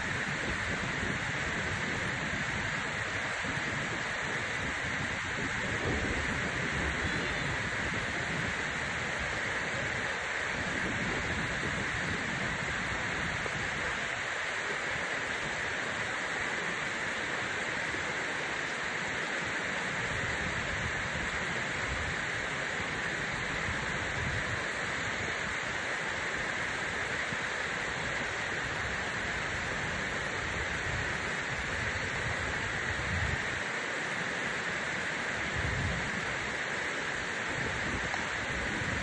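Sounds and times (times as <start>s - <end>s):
waterfall roaring: 0.0s - 39.0s.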